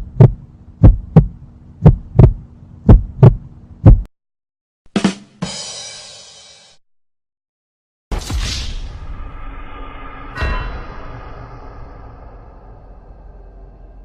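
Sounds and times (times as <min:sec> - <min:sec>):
faint steady hum: 0:00.0 - 0:04.1
heartbeat thumps: 0:00.0 - 0:04.1.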